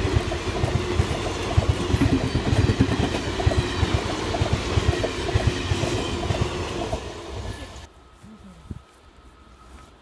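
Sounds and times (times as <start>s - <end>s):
wheels knocking on rails: 0.0s - 7.1s
passenger train rumble: 0.0s - 10.0s.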